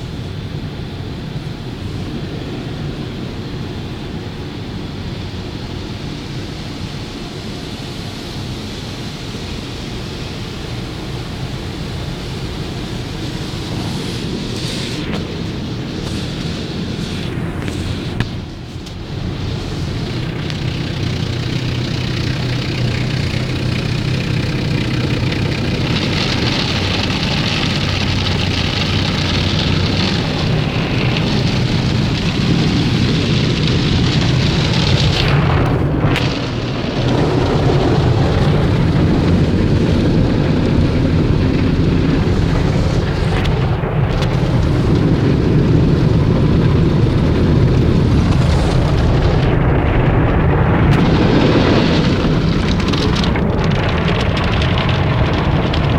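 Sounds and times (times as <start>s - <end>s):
car wash water rushing: 0.0s - 55.9s
constant low hum: 0.0s - 55.9s.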